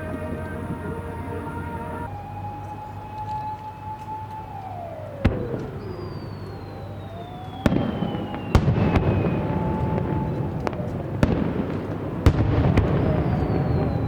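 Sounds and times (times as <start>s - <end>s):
fireworks crackling: 5.2s - 14.0s
fireworks whistling: 5.2s - 14.0s
fireworks bursting with bangs: 7.4s - 14.0s.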